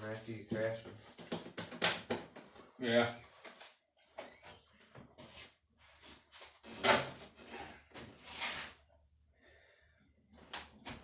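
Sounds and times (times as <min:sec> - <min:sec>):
rustling and scraping handling noise: 0:00.0 - 0:02.6, 0:05.0 - 0:08.9.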